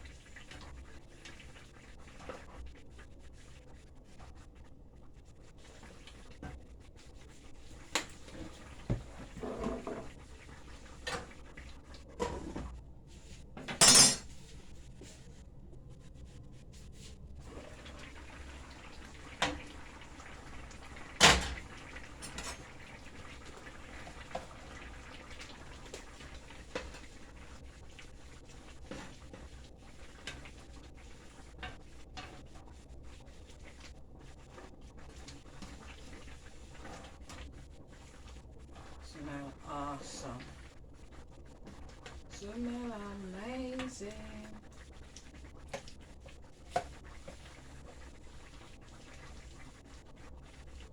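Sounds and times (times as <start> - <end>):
clatter of pots and dishes: 8.0 - 10.2, 12.1 - 12.8, 13.6 - 14.3, 21.2 - 22.8.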